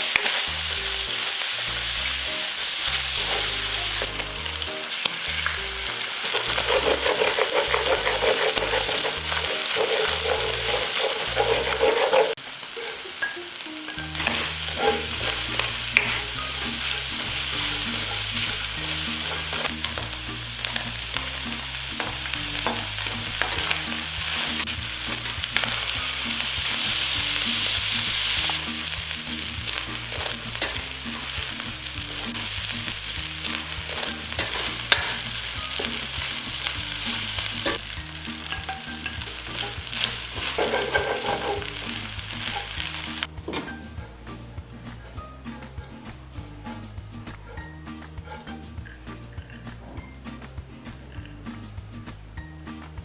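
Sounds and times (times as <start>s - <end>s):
food sizzling in a pan: 0.0s - 43.3s
utensil clicking and scraping: 6.2s - 12.4s.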